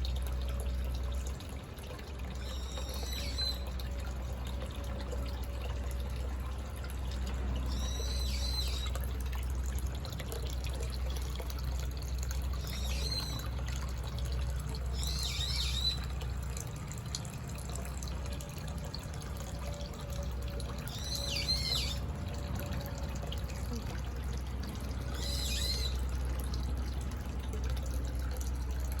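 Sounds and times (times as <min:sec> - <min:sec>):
water trickling: 0:00.0 - 0:29.0
songbird singing high notes: 0:02.4 - 0:03.7, 0:07.7 - 0:08.9, 0:14.9 - 0:16.1, 0:20.9 - 0:22.0, 0:25.2 - 0:26.0.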